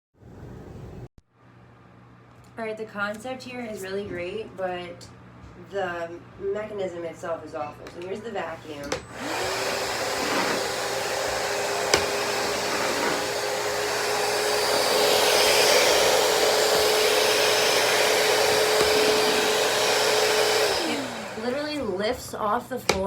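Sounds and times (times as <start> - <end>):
vacuum motor whine: 7.9 - 22.2.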